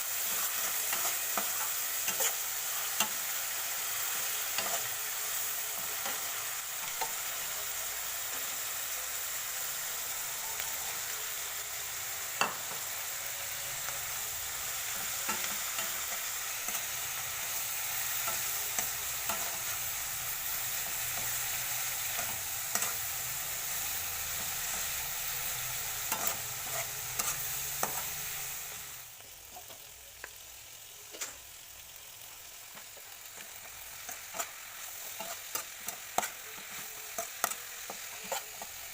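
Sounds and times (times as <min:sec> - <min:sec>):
oil sizzling in a wok: 0:00.0 - 0:38.9
spatula scraping a pan: 0:26.0 - 0:28.4, 0:34.0 - 0:38.9.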